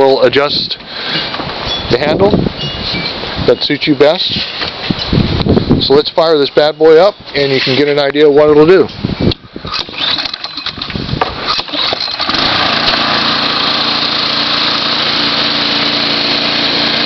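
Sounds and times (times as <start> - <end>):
starter clicks and rattles: 9.7 - 17.0
mower engine running: 9.8 - 17.0.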